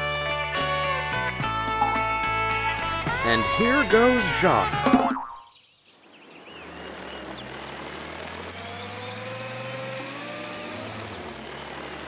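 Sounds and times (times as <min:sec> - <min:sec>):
cartoon car engine hum: 0:02.8 - 0:12.0.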